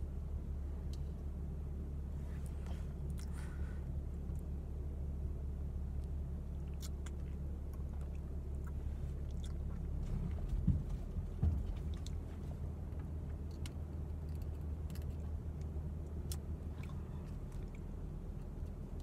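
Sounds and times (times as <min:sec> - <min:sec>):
engine low hum: 0:00.0 - 0:19.0
low thumps: 0:10.0 - 0:12.0.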